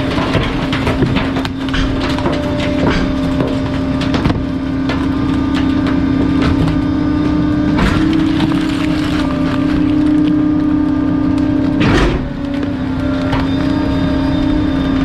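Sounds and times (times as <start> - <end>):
compactor crushing junk: 0.0 - 15.0
hydraulic hum: 0.0 - 15.0
wood cracking and snapping: 0.0 - 15.0.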